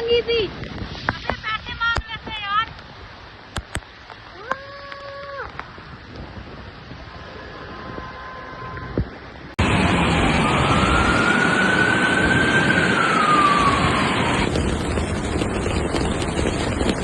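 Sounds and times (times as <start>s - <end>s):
siren wailing: 9.6s - 14.6s
steady loud roar: 9.6s - 17.0s.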